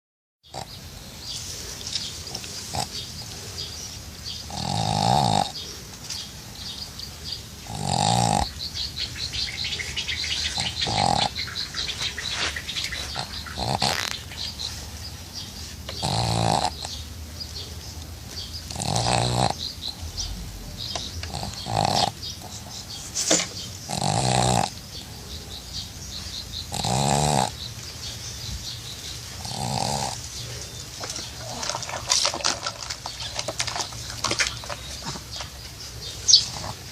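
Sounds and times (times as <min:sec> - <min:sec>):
dog snoring: 0:02.3 - 0:03.0, 0:04.4 - 0:05.7, 0:07.6 - 0:08.6, 0:10.5 - 0:14.7, 0:15.5 - 0:17.0, 0:18.6 - 0:22.9, 0:23.9 - 0:25.1, 0:26.6 - 0:27.7, 0:29.4 - 0:30.6, 0:36.3 - 0:36.9.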